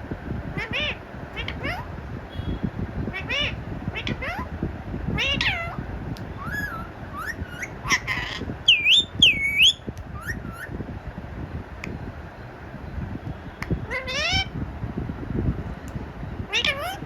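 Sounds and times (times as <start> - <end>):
parrot calling: 0.6 - 1.9, 3.1 - 4.5, 5.2 - 5.8, 6.4 - 10.7, 13.8 - 14.5, 16.5 - 17.0.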